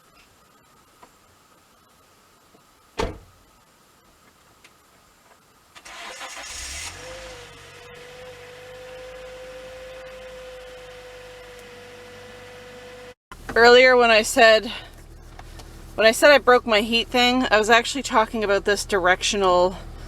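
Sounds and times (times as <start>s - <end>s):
loud thump: 3.0s - 3.4s
car engine starting and idling: 5.8s - 13.8s.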